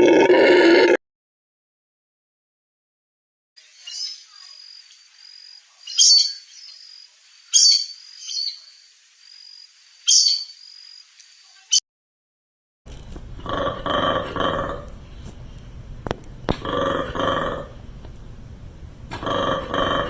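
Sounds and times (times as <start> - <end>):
birds chirping: 3.6 - 11.8
large animal low pulsing call: 16.6 - 17.8, 19.1 - 20.0.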